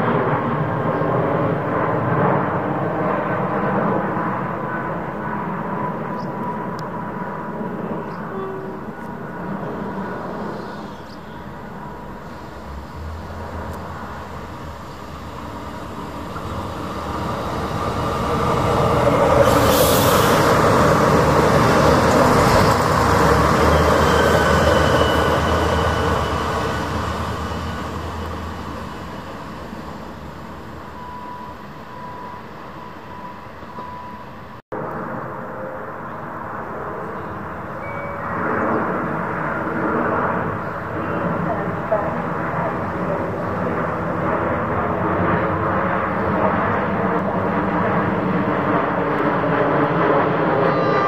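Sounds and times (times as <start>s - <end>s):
wheels rumbling on rail: 8.0s - 34.6s
low engine hum: 11.4s - 23.8s
faint high whine: 23.5s - 34.6s.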